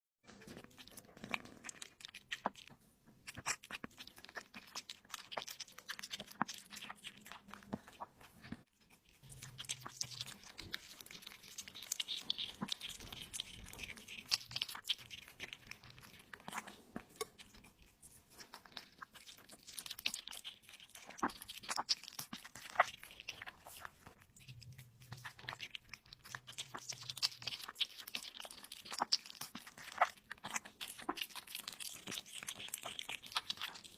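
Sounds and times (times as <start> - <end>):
person chewing and tearing meat: 0.3 - 33.9
wet crunches and clicks: 0.3 - 33.9.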